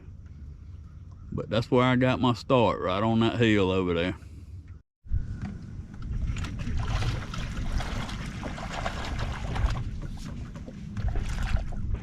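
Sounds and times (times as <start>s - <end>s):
boat engine low rumble: 0.0s - 12.0s
water splashing against hull: 5.4s - 12.0s.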